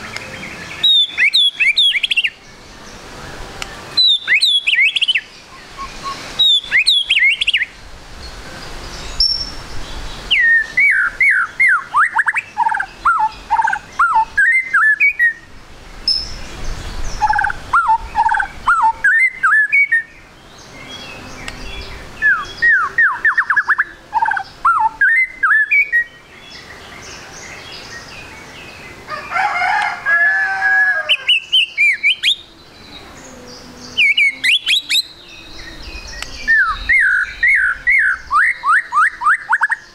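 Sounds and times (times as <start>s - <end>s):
bird singing whistled phrases: 0.1s - 2.4s, 4.0s - 7.7s, 10.3s - 15.5s, 17.2s - 20.2s, 20.8s - 26.6s, 31.1s - 33.0s, 33.9s - 39.9s.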